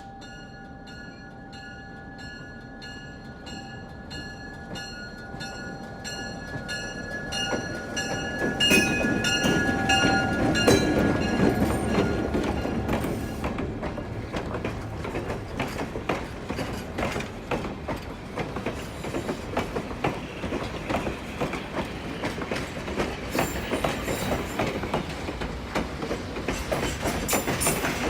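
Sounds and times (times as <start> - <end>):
low train rumble: 0.0 - 28.0
train wheels clickety-clack: 3.4 - 28.0.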